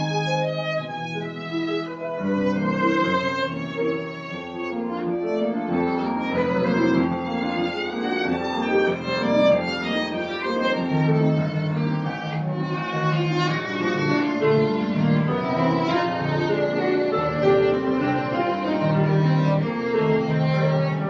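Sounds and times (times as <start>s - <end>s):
violin playing slow melody: 0.0s - 21.0s.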